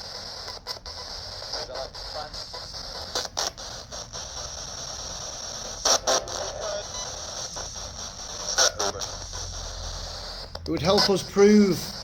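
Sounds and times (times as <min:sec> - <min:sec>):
radio static: 0:00.0 - 0:12.0
short bursts of radio sound: 0:00.0 - 0:12.0.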